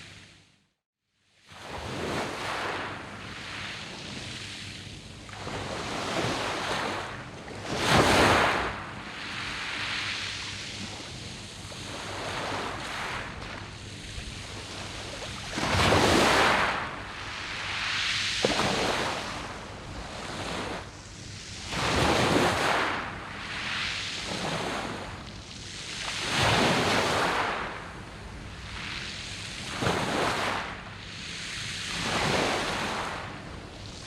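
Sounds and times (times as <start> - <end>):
waves breaking on pebble beach: 5.4 - 8.8, 14.2 - 20.8, 21.6 - 23.1, 26.2 - 30.8.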